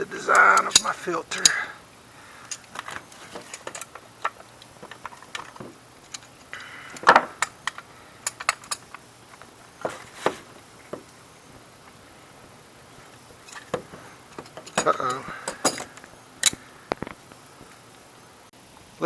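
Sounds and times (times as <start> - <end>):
plumbing fittings clicking and clattering: 13.4 - 17.1.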